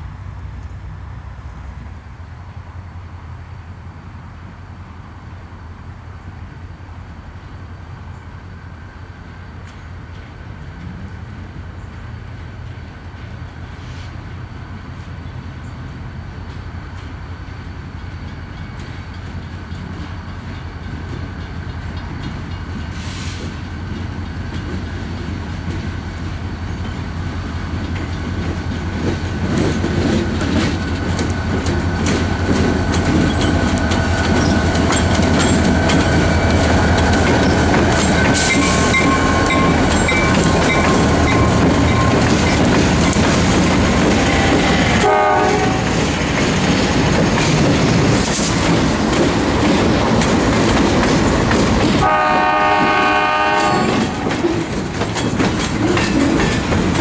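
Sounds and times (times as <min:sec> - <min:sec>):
freight train passing: 0:00.0 - 0:57.0
wheels clattering over rail joints: 0:16.4 - 0:57.0
wheel squeals: 0:32.9 - 0:44.9.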